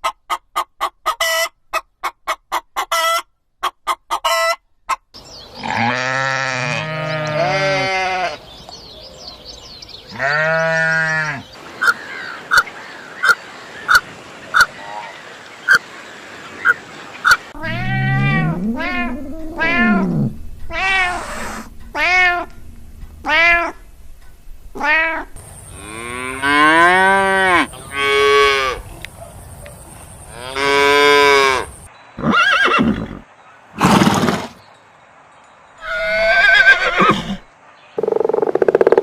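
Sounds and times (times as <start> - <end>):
short arching animal calls: 16.6 - 22.5
drawn-out animal calls: 16.7 - 22.5
short animal cries: 17.6 - 22.5.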